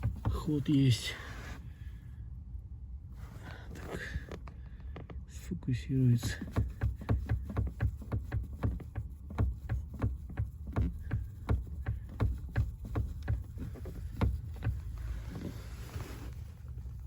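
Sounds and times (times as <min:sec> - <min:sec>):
steering joint knocking lightly: 0:00.0 - 0:01.2, 0:03.7 - 0:17.0
soft rustle: 0:03.0 - 0:05.3, 0:06.0 - 0:17.0.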